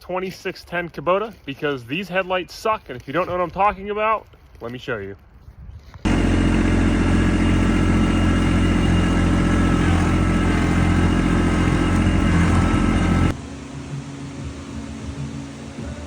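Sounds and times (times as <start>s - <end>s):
tractor diesel engine running: 6.1s - 16.0s.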